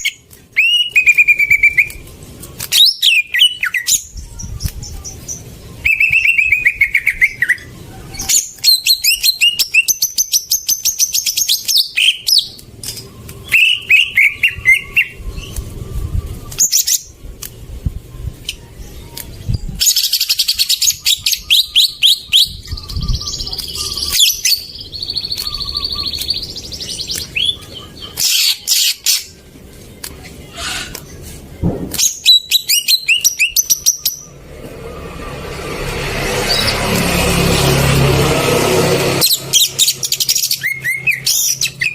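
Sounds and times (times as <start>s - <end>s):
bird chattering trills and whistles: 2.7s - 17.1s, 19.7s - 29.4s, 39.2s - 41.9s.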